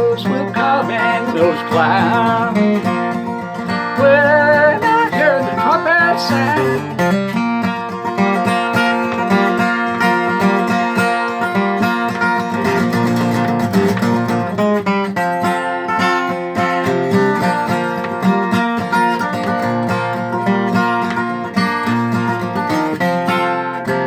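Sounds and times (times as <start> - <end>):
country gospel instrumental: 0.0 - 10.7.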